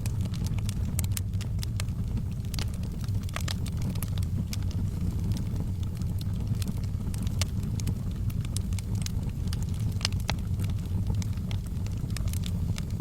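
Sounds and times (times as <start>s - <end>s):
burning wood crackling and popping: 0.0s - 13.0s
low rumble of flames: 0.0s - 13.0s.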